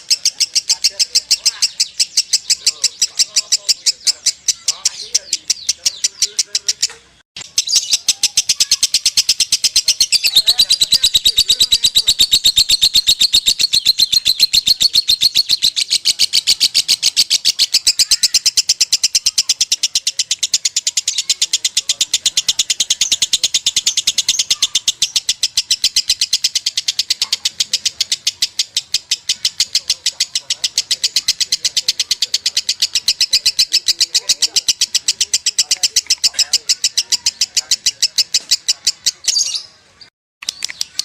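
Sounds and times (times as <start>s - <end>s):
lovebird chattering trill: 0.0s - 41.0s.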